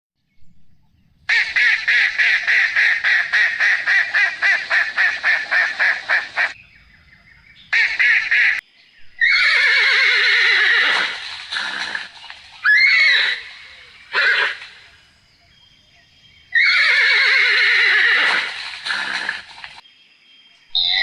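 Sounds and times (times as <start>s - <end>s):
waterfowl honking quacks: 1.3s - 6.6s, 7.6s - 8.6s, 10.2s - 15.6s, 17.3s - 19.8s
horse whinnying: 9.2s - 15.0s, 16.5s - 19.7s.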